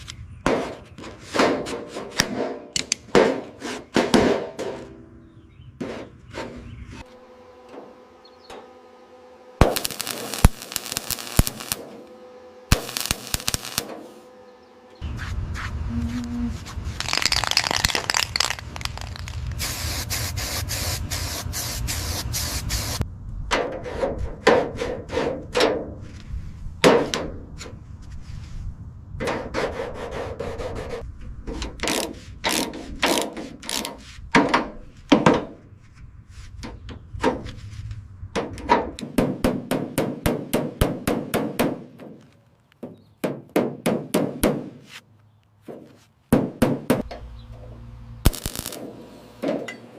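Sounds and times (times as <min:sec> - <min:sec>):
grinding noise: 0:06.4 - 0:20.2.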